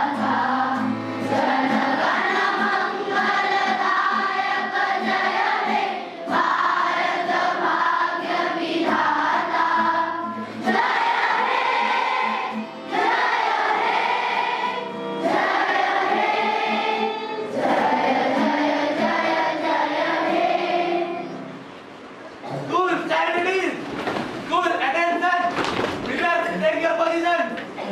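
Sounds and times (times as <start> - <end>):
children singing in chorus: 0.0 - 21.5.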